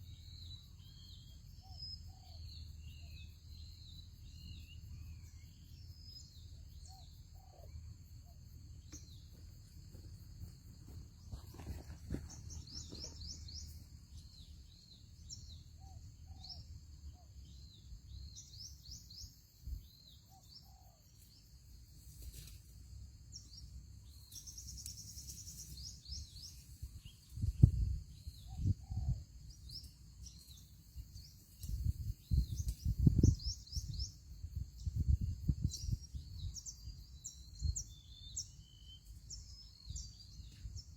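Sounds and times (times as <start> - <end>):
small birds chirping: 0.0 - 22.7, 23.3 - 40.9
lower bird calls: 10.8 - 21.1, 24.3 - 34.2.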